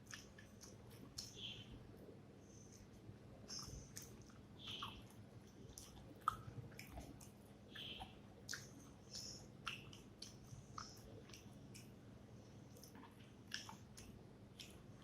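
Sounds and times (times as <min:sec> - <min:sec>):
wet mouth clicks and smacks: 0:00.0 - 0:01.4, 0:03.5 - 0:05.1, 0:05.7 - 0:07.4, 0:08.4 - 0:11.9, 0:12.7 - 0:14.8
person chewing food: 0:00.0 - 0:01.6, 0:02.7 - 0:12.0, 0:12.6 - 0:15.0.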